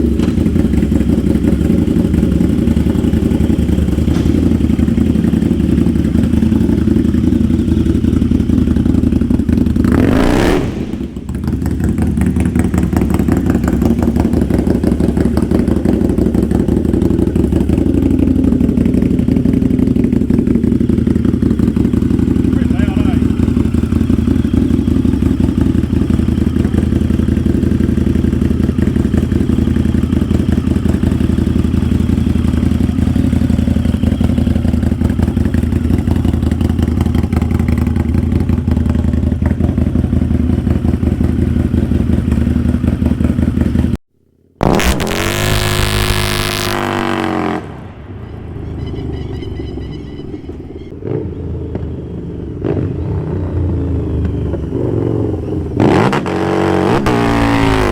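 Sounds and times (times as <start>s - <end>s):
motorcycle engine at high revs: 0.0s - 44.0s, 44.6s - 48.2s, 50.9s - 57.9s
engine revving hard: 9.8s - 11.2s, 44.6s - 48.0s, 55.7s - 57.9s.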